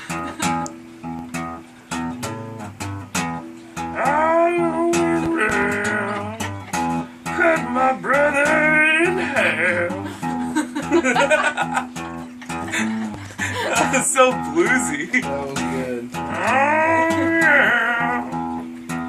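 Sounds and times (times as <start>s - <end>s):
acoustic guitar picking blues: 0.0s - 19.0s
person singing wordless melody: 3.8s - 10.2s, 14.3s - 18.5s.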